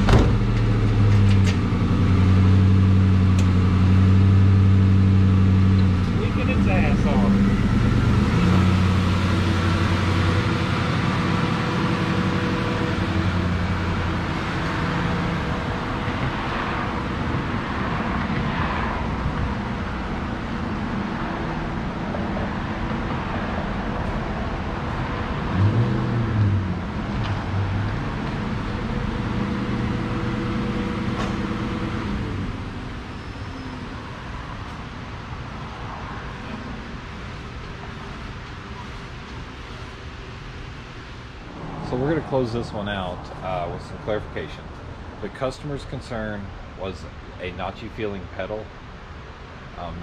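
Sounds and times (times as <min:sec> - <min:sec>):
car engine pulling away: 0:00.0 - 0:17.5, 0:24.9 - 0:34.0.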